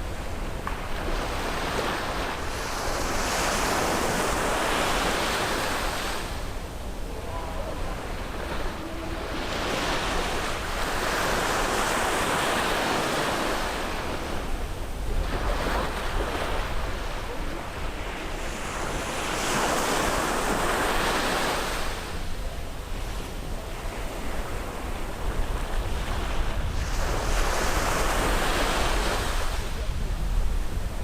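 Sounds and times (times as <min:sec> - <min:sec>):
waves washing on beach: 0:00.0 - 0:31.0
wind buffeting microphone: 0:23.4 - 0:31.0.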